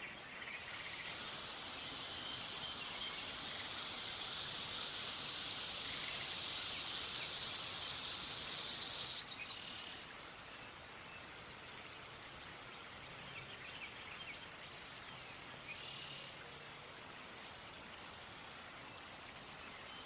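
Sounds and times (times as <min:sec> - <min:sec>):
faint bird chirps: 0:00.0 - 0:10.1, 0:15.0 - 0:16.6
snake hissing: 0:00.7 - 0:09.3.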